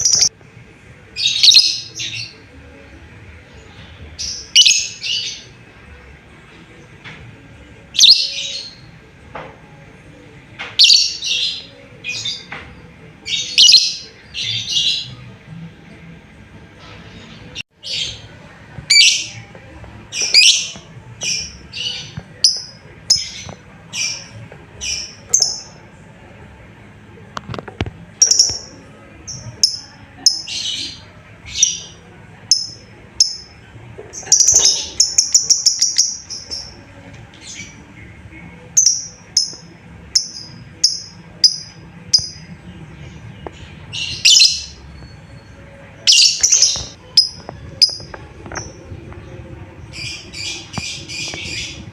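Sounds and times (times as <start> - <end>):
lovebird chirping: 28.2 - 28.7, 34.2 - 36.8, 43.9 - 48.9.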